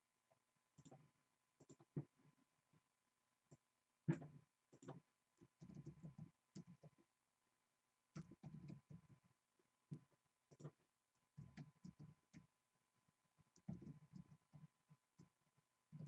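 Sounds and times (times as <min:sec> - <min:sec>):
keyboard and mouse clicking: 0:00.8 - 0:01.0, 0:01.6 - 0:02.1, 0:03.5 - 0:07.0, 0:08.1 - 0:09.0, 0:11.4 - 0:12.5, 0:13.5 - 0:14.6.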